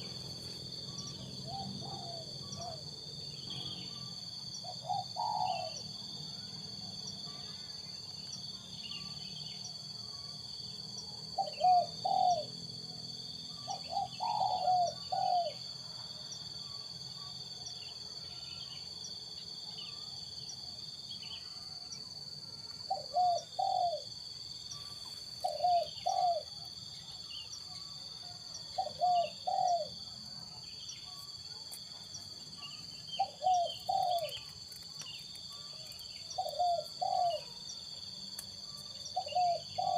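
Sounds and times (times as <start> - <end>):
doves cooing: 1.4 - 2.8, 4.7 - 5.8, 11.4 - 12.5, 13.7 - 15.6, 22.9 - 24.1, 24.8 - 26.6, 28.8 - 30.0, 33.2 - 34.8, 35.9 - 37.5, 39.2 - 39.9.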